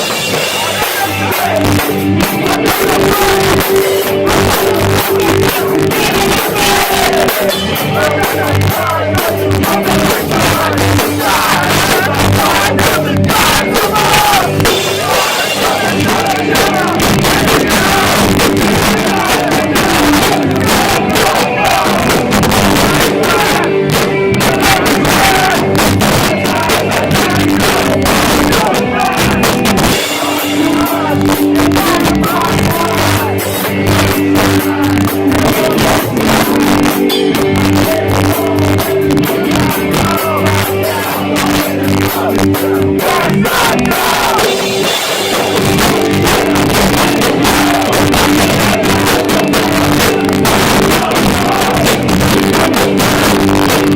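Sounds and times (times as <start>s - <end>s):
crowd shouting along: 0.0s - 53.9s
distorted guitars: 0.0s - 53.9s
pounding drums: 0.0s - 53.9s
shouted vocals: 0.0s - 53.9s.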